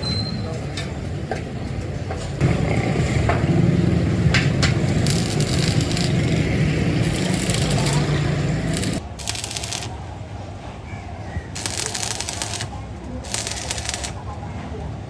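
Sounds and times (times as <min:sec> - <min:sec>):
machine humming: 0:04.9 - 0:06.3, 0:07.0 - 0:10.0, 0:11.6 - 0:12.7, 0:13.3 - 0:14.2
sharp ticks: 0:04.9 - 0:06.3, 0:07.0 - 0:10.0, 0:11.6 - 0:14.2.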